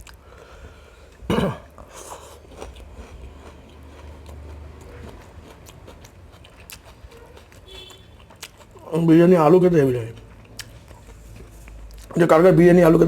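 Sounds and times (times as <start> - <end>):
person chewing food: 0.0 - 9.0, 10.0 - 12.3
throat noise: 1.2 - 2.4.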